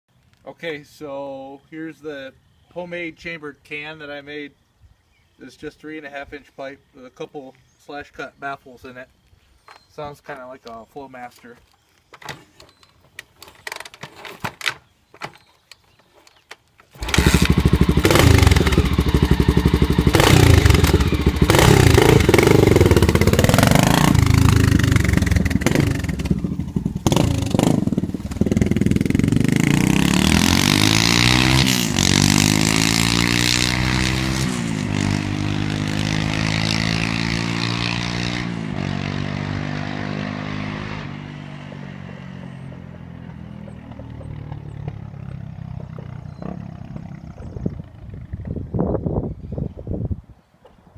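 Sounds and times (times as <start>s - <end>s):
motorcycle engine revving and idling: 17.0s - 49.0s.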